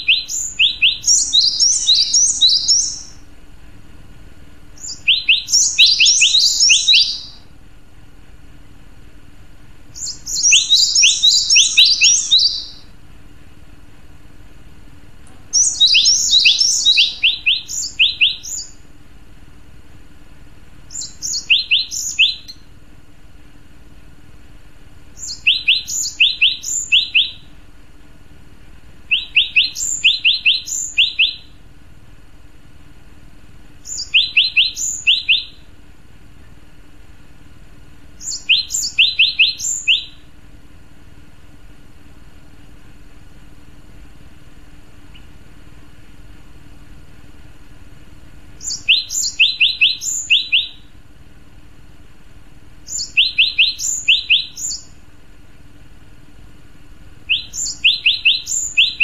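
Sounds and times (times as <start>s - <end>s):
bird singing sharp repeated notes: 0.0s - 3.2s, 4.8s - 7.5s, 10.0s - 12.9s, 15.5s - 18.8s, 20.9s - 22.7s, 25.2s - 27.5s, 29.1s - 31.6s, 33.8s - 35.7s, 38.2s - 40.3s, 48.6s - 50.9s, 52.9s - 55.0s, 57.3s - 59.0s.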